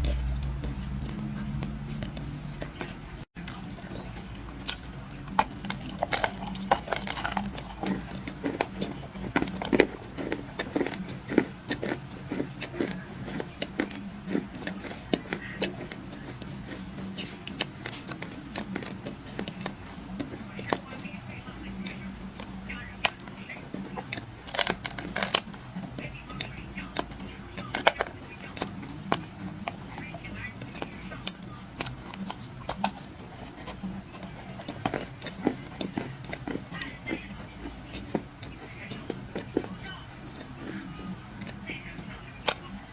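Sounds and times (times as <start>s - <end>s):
faint steady hum: 0.0s - 42.9s
dry clay crunching and crumbling: 2.8s - 21.1s, 21.9s - 26.0s.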